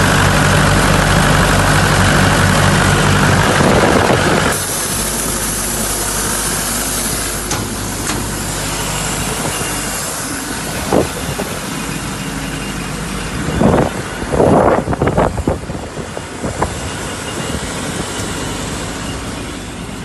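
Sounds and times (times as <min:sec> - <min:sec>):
engine idling: 0:00.0 - 0:20.0
strong even hiss: 0:04.4 - 0:11.8.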